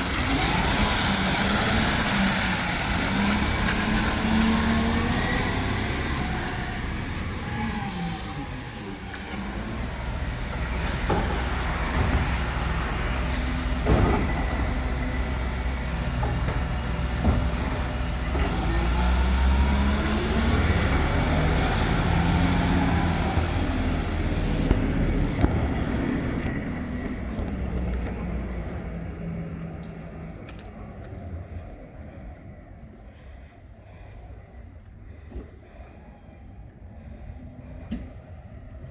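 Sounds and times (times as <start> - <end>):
truck diesel engine running: 0.0 - 33.0.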